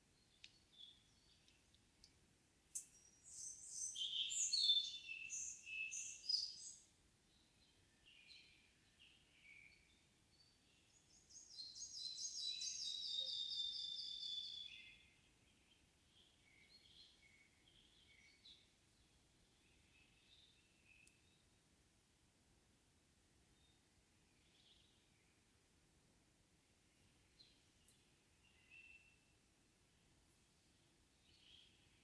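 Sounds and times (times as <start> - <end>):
songbirds singing: 0.1 - 21.5, 26.9 - 29.3, 30.4 - 32.0
soft bird chirps: 2.8 - 21.5, 26.9 - 29.4, 30.4 - 32.0.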